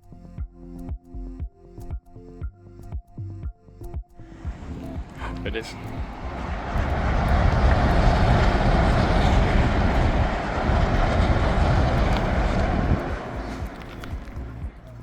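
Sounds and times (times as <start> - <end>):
train wheels rumbling on rails: 4.5 - 14.9.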